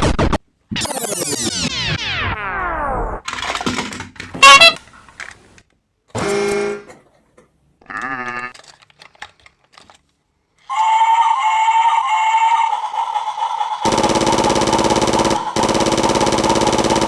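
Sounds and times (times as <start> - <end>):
toy-like sound effects: 4.4 - 4.8
small clicks: 7.9 - 10.2.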